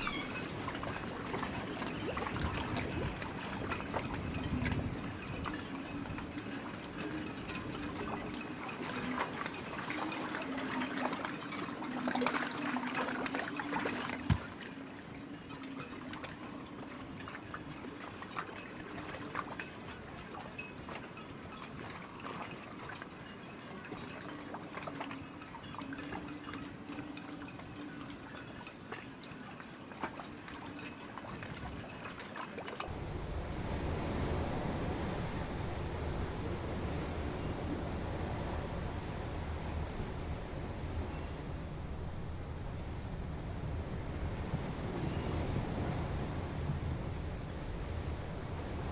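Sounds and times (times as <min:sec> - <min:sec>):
water trickling and splashing: 0:00.0 - 0:48.9
dull thump: 0:14.2 - 0:14.6
faint steady hum: 0:32.9 - 0:48.9.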